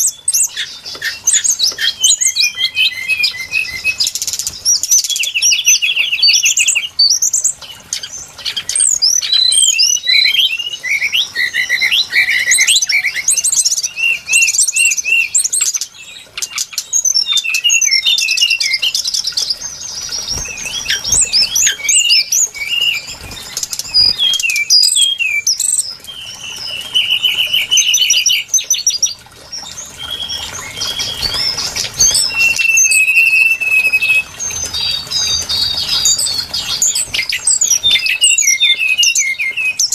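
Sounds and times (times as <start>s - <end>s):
bird singing whistles and trills: 0.0s - 39.9s.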